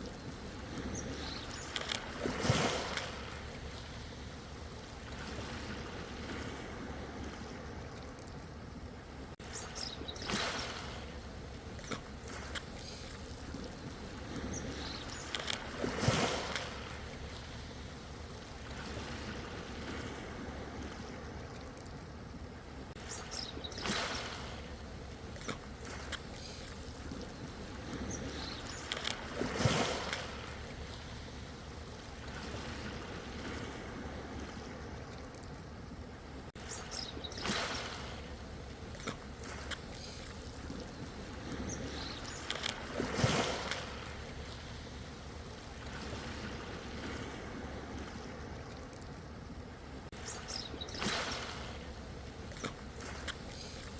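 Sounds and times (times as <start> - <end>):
ocean waves crashing: 15.0 - 20.7, 28.4 - 31.3, 41.2 - 48.5.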